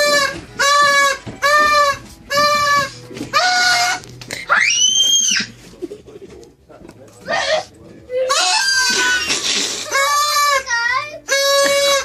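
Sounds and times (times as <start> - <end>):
toy noisemaker honks: 0.0 - 4.0, 11.3 - 12.0.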